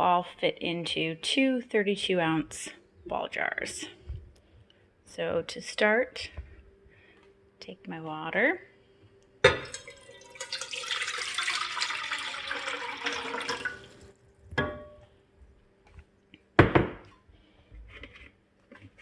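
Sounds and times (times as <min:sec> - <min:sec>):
water poured into saucepan: 0:09.6 - 0:14.2.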